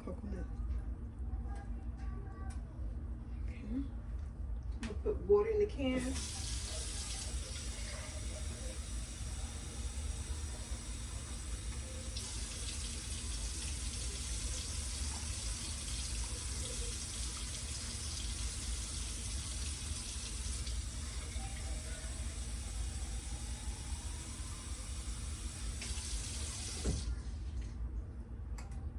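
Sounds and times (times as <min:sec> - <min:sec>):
tap water running into a can: 0:06.0 - 0:27.2.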